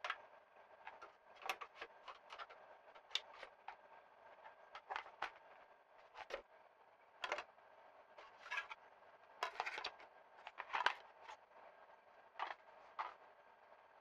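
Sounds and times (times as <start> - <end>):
plastic clicks and rattles: 0.9 - 3.8, 4.8 - 5.4, 6.1 - 6.4, 7.2 - 7.4, 9.4 - 11.4, 12.4 - 13.2.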